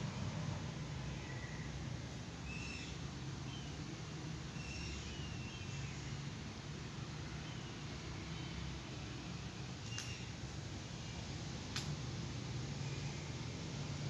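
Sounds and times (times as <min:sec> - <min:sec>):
faint bird chirps: 0:02.4 - 0:03.8, 0:04.5 - 0:06.2, 0:09.2 - 0:11.3.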